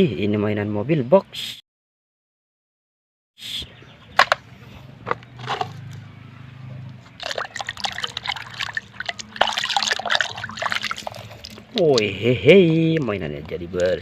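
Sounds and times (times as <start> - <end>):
water splashing and trickling: 6.8 - 13.2.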